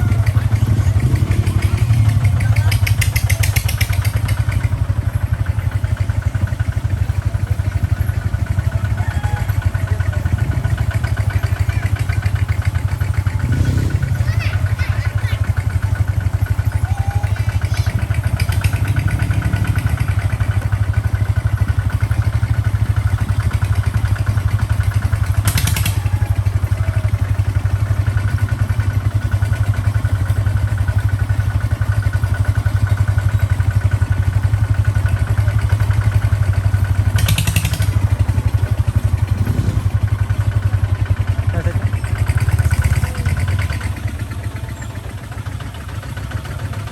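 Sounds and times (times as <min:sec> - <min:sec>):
tractor diesel engine chugging: 0:00.0 - 0:46.9.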